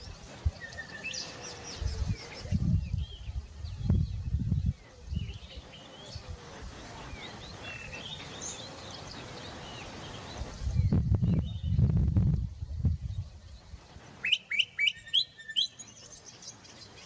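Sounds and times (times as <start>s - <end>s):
wind gusts on microphone: 0.0s - 8.4s, 9.0s - 14.2s
bird whistled calls: 14.2s - 15.9s.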